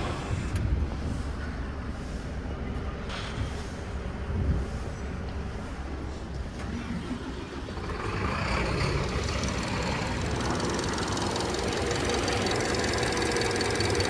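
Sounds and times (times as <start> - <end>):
car engine running: 6.6 - 14.0.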